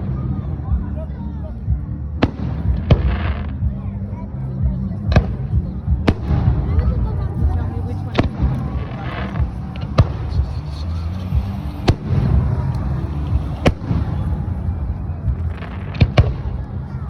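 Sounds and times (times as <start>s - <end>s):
constant low rumble: 0.0s - 17.0s
fireworks bangs: 6.1s - 17.0s.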